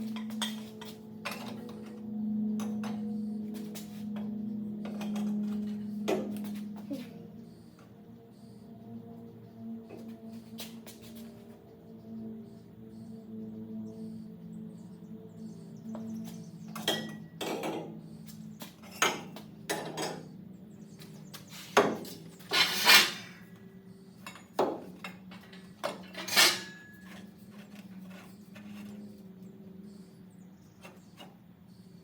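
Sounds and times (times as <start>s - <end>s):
metal tools clanking: 22.5s - 23.4s, 24.2s - 28.8s.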